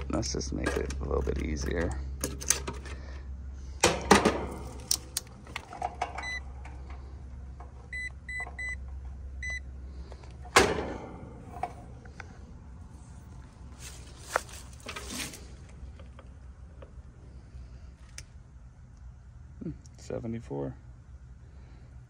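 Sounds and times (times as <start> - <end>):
clicks of wire connectors and probes: 0.0 - 3.0, 4.5 - 7.0, 18.0 - 18.3
steady low hum: 0.0 - 22.0
multimeter beeps: 6.2 - 6.5, 7.9 - 8.8, 9.4 - 9.7.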